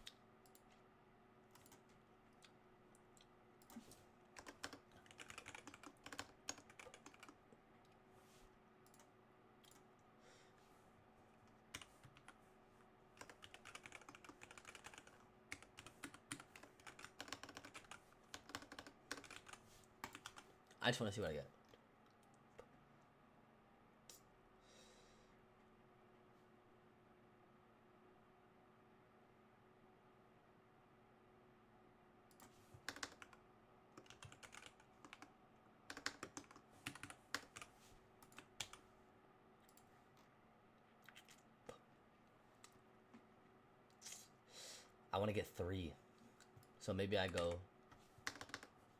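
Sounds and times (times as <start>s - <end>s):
faint steady hum: 0.0s - 48.9s
typing on keyboard: 1.5s - 1.8s, 4.4s - 7.4s, 11.7s - 12.4s, 13.2s - 20.4s, 32.3s - 33.4s, 34.0s - 35.3s, 35.9s - 38.8s, 48.2s - 48.7s.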